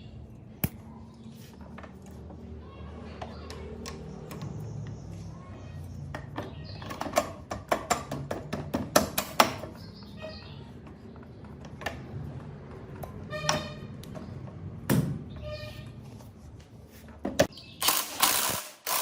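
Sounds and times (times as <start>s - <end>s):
tools knocking and clicking: 6.1s - 9.8s.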